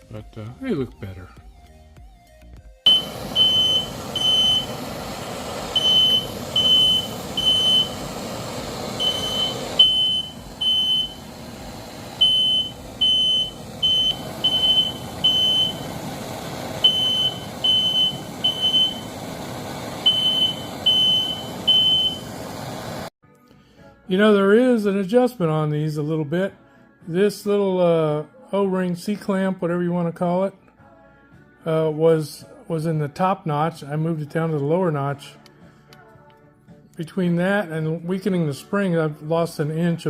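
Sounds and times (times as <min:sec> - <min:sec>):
smoke alarm beeping: 0:02.9 - 0:22.6
steady rushing noise: 0:02.9 - 0:23.1.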